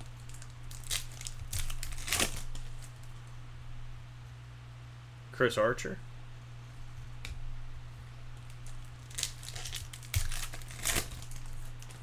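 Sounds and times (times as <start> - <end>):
foil wrapper crinkling and tearing: 0.0 - 3.2, 8.4 - 12.0.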